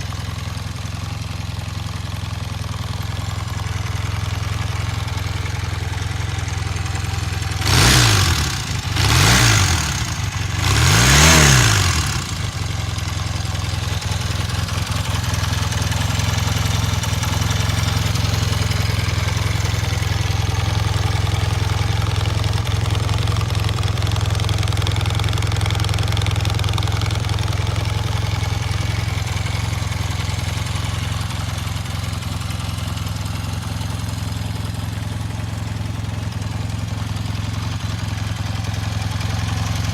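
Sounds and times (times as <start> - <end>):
motorcycle engine idling: 0.0 - 39.9
motorcycle engine revs: 7.4 - 13.0.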